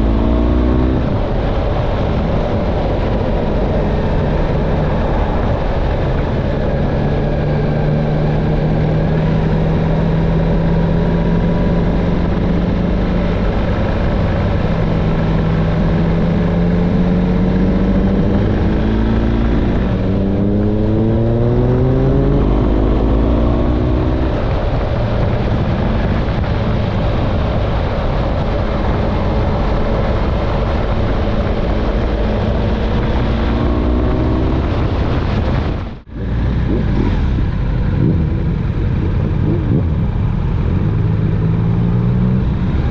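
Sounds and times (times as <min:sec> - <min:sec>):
motorcycle engine running: 0:00.0 - 0:42.9
wind noise: 0:00.0 - 0:42.9.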